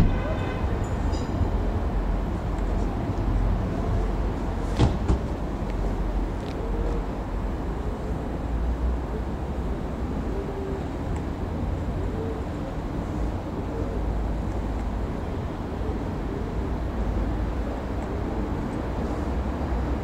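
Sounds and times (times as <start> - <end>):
train engine rumble: 0.0 - 20.0.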